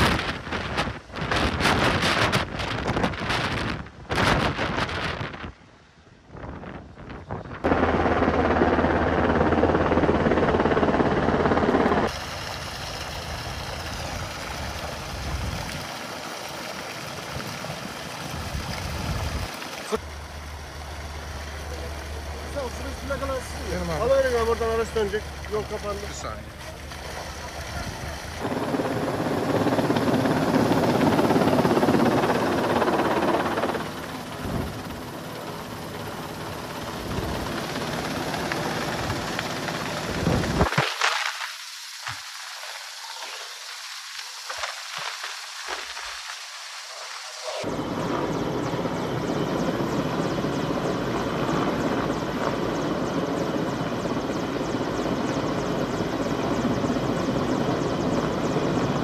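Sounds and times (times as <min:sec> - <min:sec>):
helicopter rotor whirring: 0:07.5 - 0:40.9, 0:46.8 - 0:59.0.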